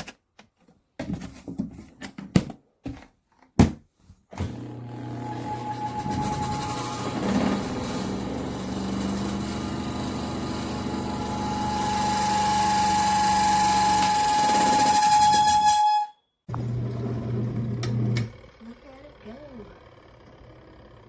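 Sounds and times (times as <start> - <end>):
washing machine motor humming: 4.4 - 15.3, 16.5 - 21.0.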